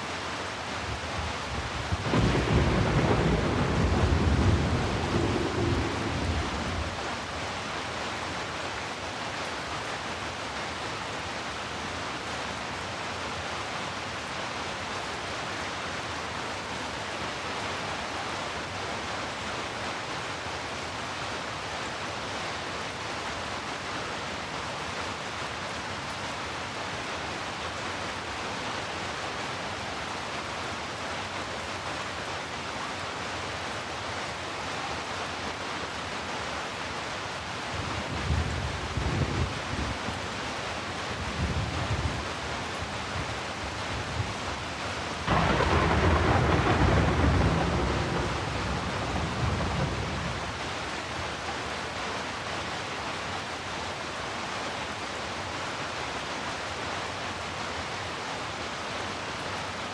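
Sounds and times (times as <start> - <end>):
heavy rain hissing: 0.0 - 12.8, 24.4 - 59.9
low rumble of thunder: 1.4 - 7.3, 45.3 - 50.6.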